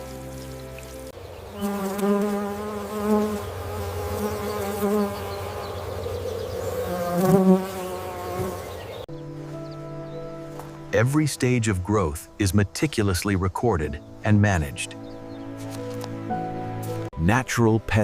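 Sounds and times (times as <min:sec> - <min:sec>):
flying insect buzzing: 0:00.0 - 0:09.0.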